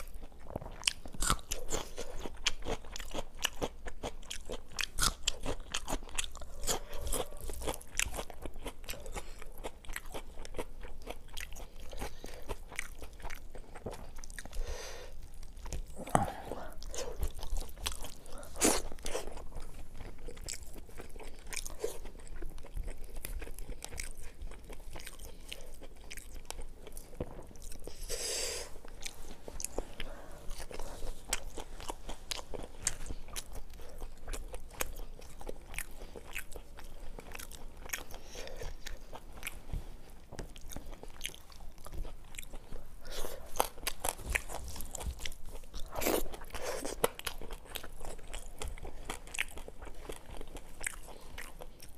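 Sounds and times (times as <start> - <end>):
chewing and crunching food: 0.0 - 51.9
breathy sound: 15.9 - 17.2.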